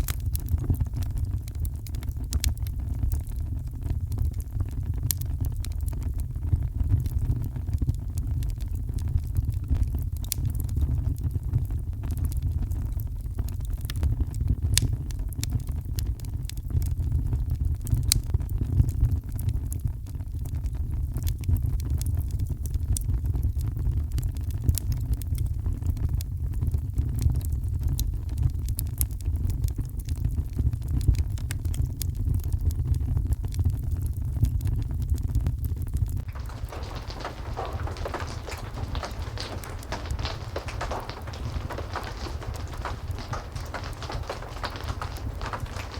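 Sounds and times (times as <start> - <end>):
crackling wood fire: 0.0 - 19.5, 36.2 - 45.9
heavy rain rumble: 36.3 - 45.9.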